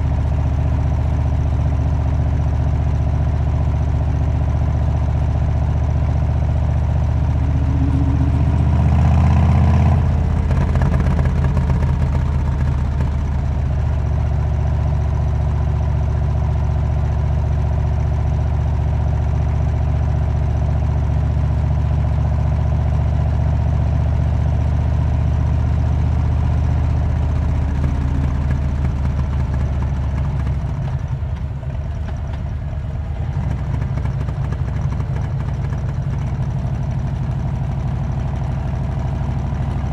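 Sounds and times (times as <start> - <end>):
motorcycle engine exhaust note: 4.7 - 14.4, 25.2 - 30.8.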